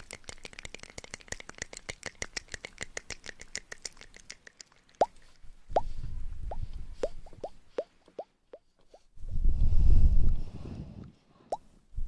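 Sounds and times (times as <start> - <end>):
fast soft clicks: 0.0 - 5.4.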